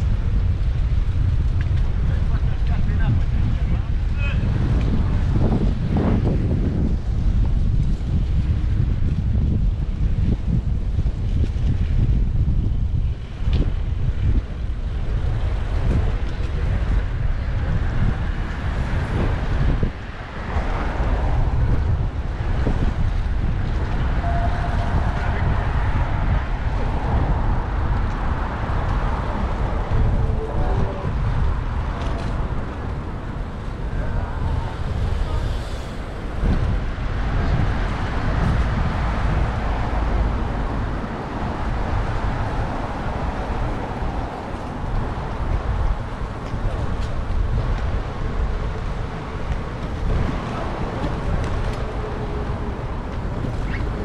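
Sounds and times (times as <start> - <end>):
wind buffeting microphone: 0.0 - 54.0
road traffic: 13.0 - 54.0.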